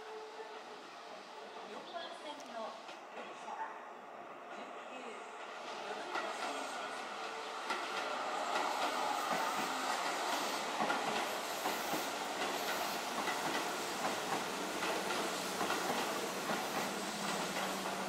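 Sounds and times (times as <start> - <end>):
electric train passing: 0.0 - 18.0
train wheels clacking over rail joints: 7.6 - 18.0.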